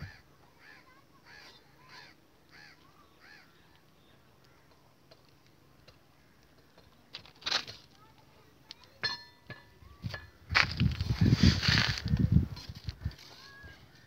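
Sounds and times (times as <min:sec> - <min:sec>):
bird calling faintly: 0:00.0 - 0:07.1.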